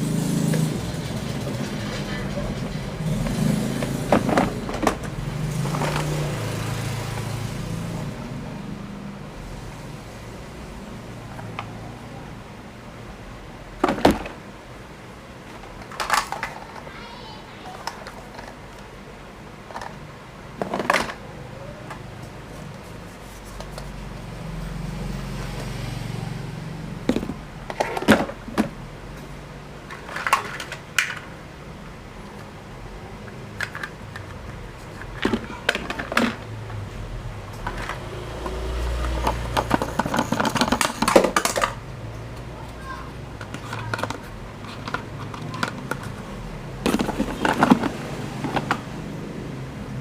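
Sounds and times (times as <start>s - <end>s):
plastic toys clicking and knocking: 0.5s - 6.4s, 13.8s - 14.4s, 15.4s - 18.9s, 19.6s - 22.2s, 27.1s - 28.8s, 29.9s - 31.3s, 33.3s - 36.8s, 37.6s - 49.1s.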